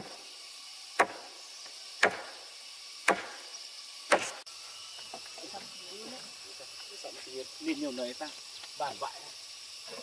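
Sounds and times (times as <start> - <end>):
blade chopping wood: 1.0 - 1.3, 2.0 - 2.4, 3.0 - 3.4, 4.1 - 4.4.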